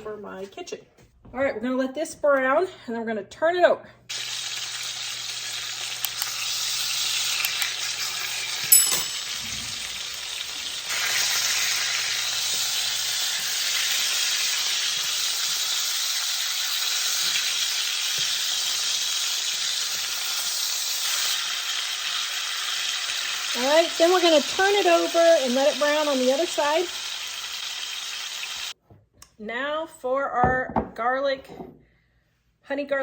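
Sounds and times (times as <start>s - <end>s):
chicken sizzling in hot oil: 4.1s - 28.8s.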